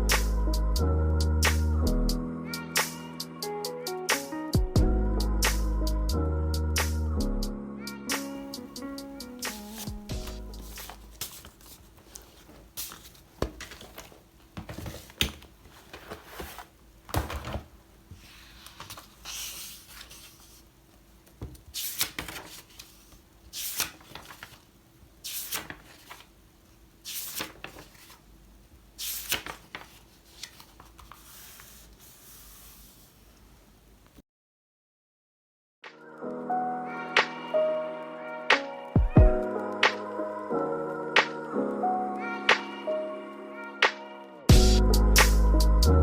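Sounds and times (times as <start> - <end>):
rustling and rubbing: 9.4 - 20.8, 29.0 - 33.4.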